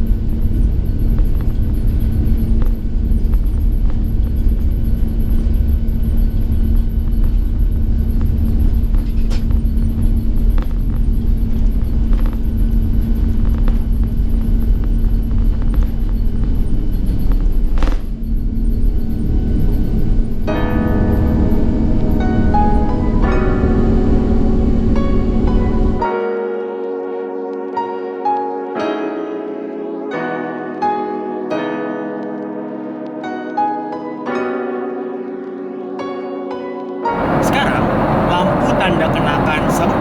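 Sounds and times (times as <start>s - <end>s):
airliner cabin engine rumble: 37.1s - 40.0s.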